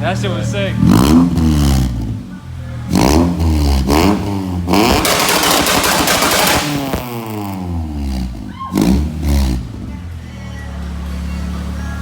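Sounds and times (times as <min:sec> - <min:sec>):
engine revving in blips: 0:00.7 - 0:10.1
launch limiter crackling pops: 0:04.8 - 0:07.3.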